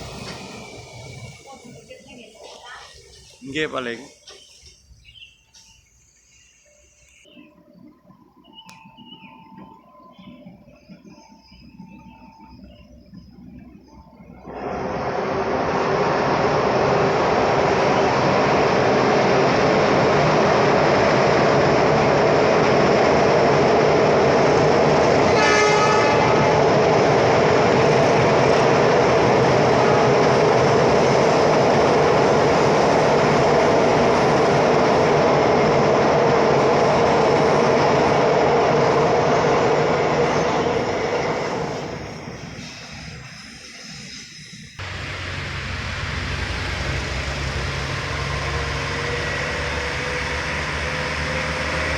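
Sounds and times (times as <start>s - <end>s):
train wheels rumbling on rails: 0.0s - 51.9s
train horn blast: 25.2s - 26.8s, 29.6s - 30.6s.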